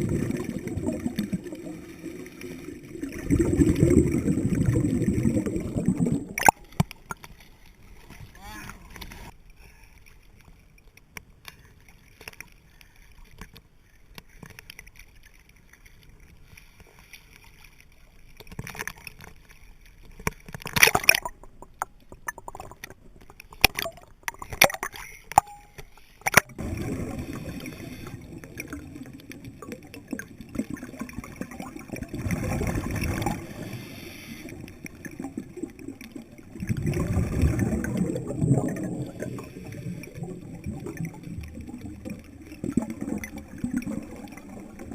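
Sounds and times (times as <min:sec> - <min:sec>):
bubbles gurgling underwater: 0:00.0 - 0:06.6, 0:26.5 - 0:33.8, 0:34.4 - 0:44.9
underwater water noise: 0:00.0 - 0:44.9.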